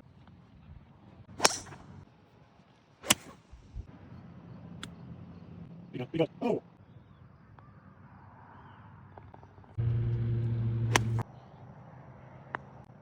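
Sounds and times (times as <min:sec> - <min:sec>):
golf club striking ball: 0:01.4 - 0:01.8, 0:10.1 - 0:11.2.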